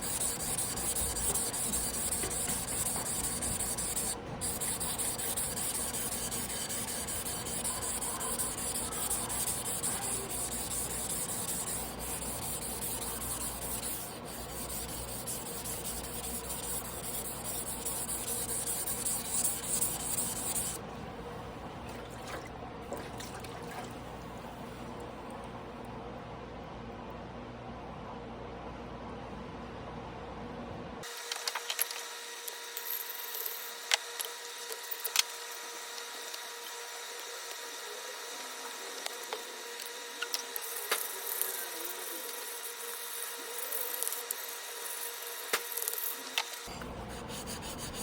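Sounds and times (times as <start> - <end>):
knife grinding on a whetstone: 0.0 - 20.8, 46.7 - 48.0.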